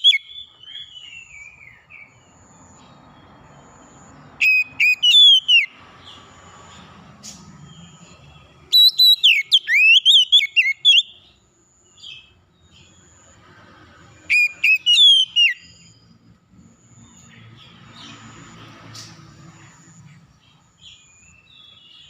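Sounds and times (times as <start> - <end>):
songbird whistled phrases: 0.0 - 1.7, 4.4 - 5.7, 8.7 - 11.2, 14.3 - 15.9.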